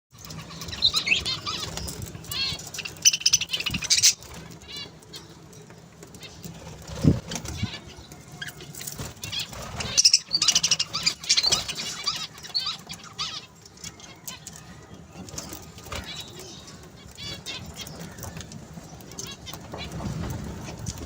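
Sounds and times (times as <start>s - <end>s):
parrots chirping: 0.2s - 5.5s, 6.2s - 14.7s
wing fluttering: 6.1s - 13.4s.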